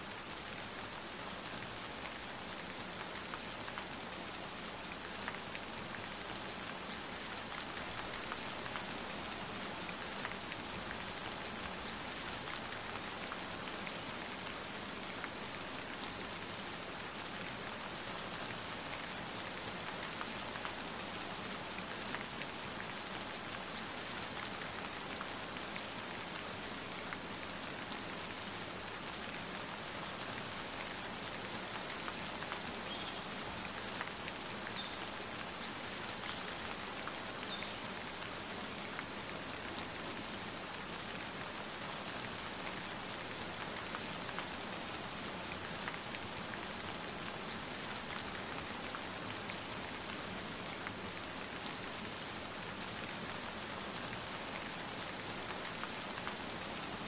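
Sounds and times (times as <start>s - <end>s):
gentle rain falling: 0.0s - 57.0s.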